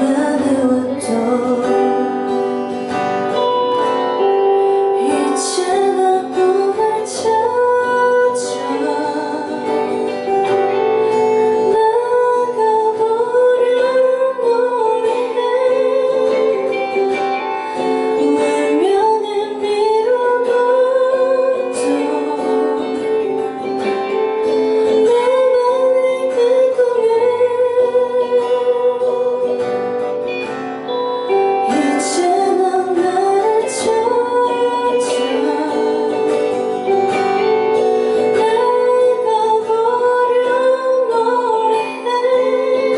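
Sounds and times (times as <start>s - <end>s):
acoustic guitar: 0.0s - 42.9s
woman singing: 0.0s - 42.9s.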